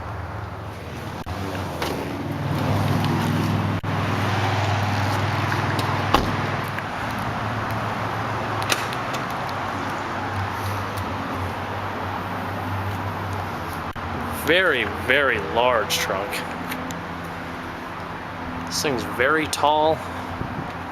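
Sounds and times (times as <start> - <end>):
outdoor background noise: 0.0 - 20.9
vehicle engine humming: 0.0 - 20.9.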